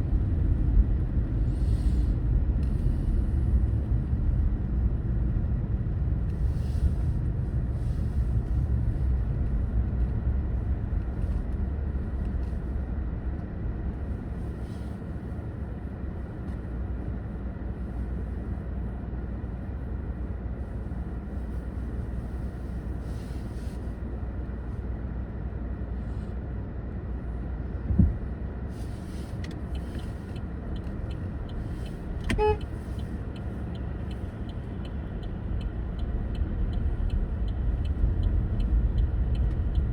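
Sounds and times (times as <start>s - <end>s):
car driving rumble: 0.0s - 39.9s
car horn toot: 32.2s - 32.8s.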